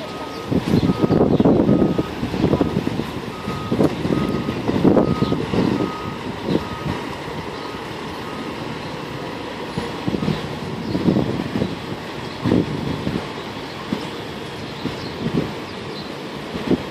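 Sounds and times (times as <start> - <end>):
reversing alarm beeping: 0.0 - 9.2
truck engine running: 0.0 - 16.9.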